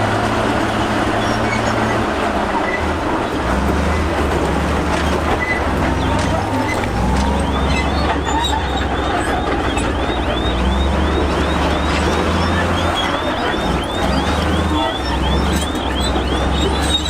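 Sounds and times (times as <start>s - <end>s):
diesel machinery engine drone: 0.0s - 17.0s
high repeating squeak: 5.4s - 17.0s.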